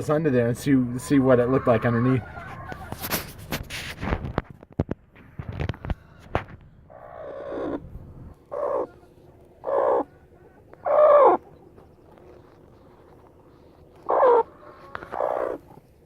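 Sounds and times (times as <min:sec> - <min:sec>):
hen calling: 0:00.7 - 0:03.1, 0:06.9 - 0:15.8.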